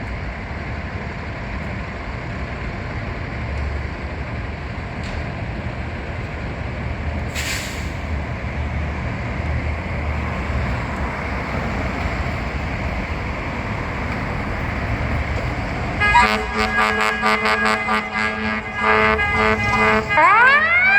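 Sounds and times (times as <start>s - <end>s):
diesel engine rumbling: 0.0s - 20.9s
air brake hiss: 7.3s - 8.1s.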